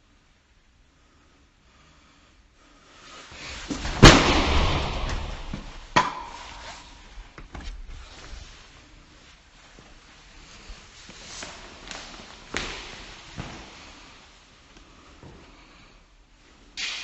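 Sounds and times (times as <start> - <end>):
rustling: 2.9 - 15.8.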